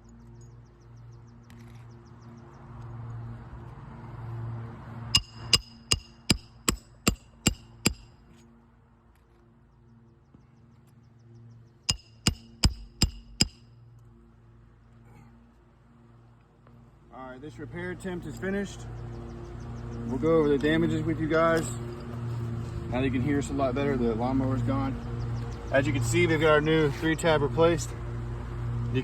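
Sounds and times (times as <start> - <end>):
hammer driving nails: 5.2 - 8.1, 11.9 - 13.6.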